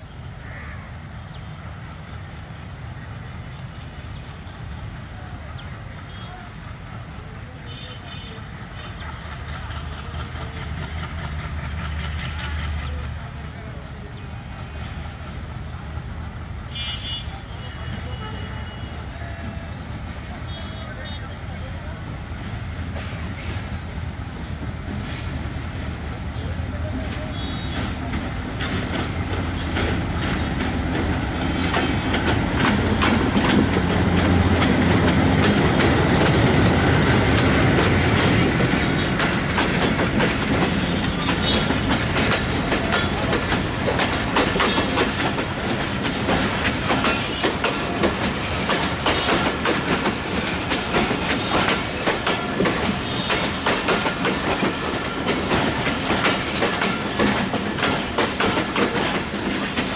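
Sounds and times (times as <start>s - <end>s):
diesel locomotive engine rumble: 0.0s - 59.9s
train wheels clacking over rail joints: 8.8s - 13.8s, 22.2s - 23.8s, 24.6s - 59.9s.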